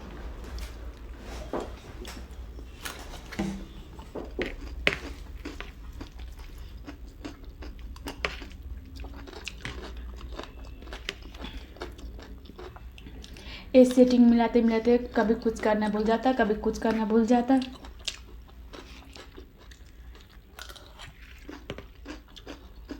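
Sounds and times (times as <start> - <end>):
chewing crunchy snack: 3.7 - 13.4, 17.6 - 22.9.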